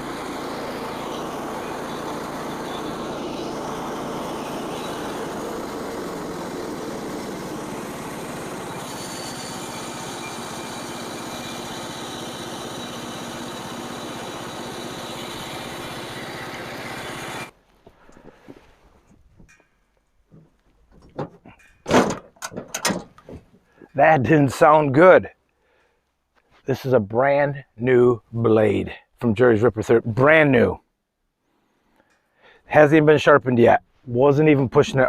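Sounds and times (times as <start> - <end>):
band saw cutting log: 0.0 - 17.6
small gas engine running: 0.0 - 18.6.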